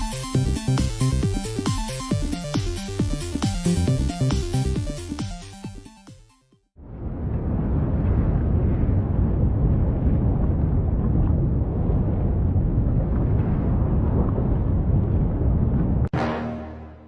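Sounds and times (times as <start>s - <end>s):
volcanic eruption rumbling roar: 6.8s - 16.1s
loud musical chord: 16.1s - 17.0s.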